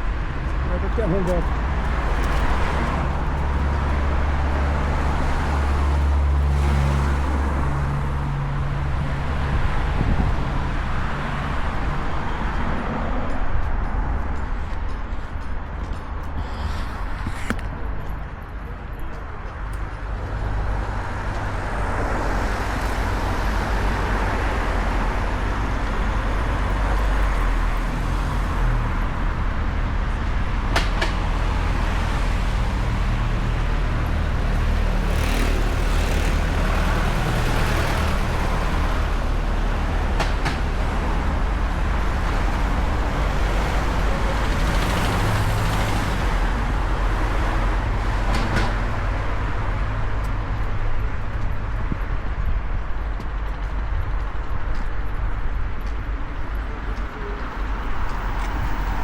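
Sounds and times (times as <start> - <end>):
vehicles passing: 0.0 - 59.0.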